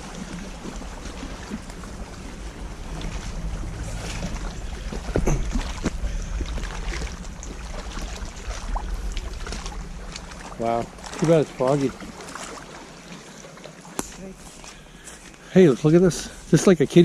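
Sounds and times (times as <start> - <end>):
wind rumble on microphone: 0.0 - 12.2
brief low thump: 4.9 - 7.1.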